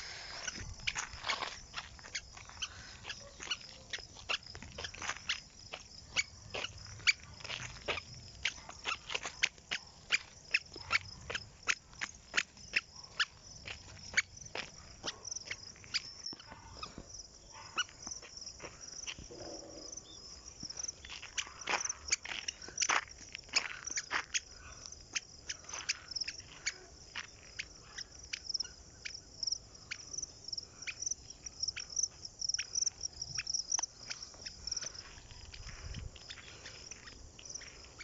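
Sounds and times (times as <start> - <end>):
squeaky shoes chirping: 0.0 - 18.3.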